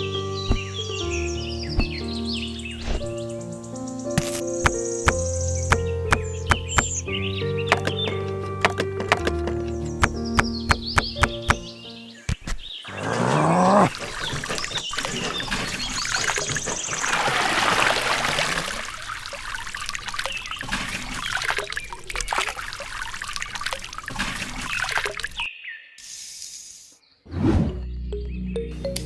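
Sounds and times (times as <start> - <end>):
water trickling and pouring: 13.0 - 25.5.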